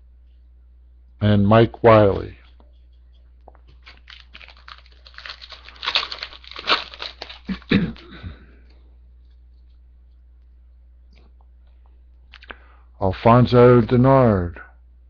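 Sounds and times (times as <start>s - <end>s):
wrapper being torn and crinkled: 3.7s - 8.1s.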